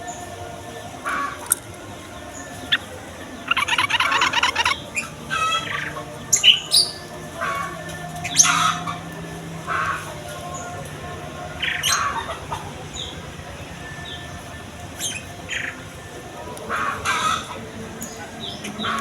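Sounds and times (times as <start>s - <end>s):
birds chattering and whistling: 0.0s - 19.0s.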